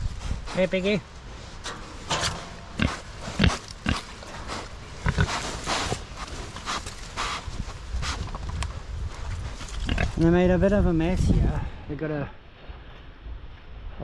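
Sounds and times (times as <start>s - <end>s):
pigs grunting: 2.2s - 7.4s, 9.8s - 10.2s.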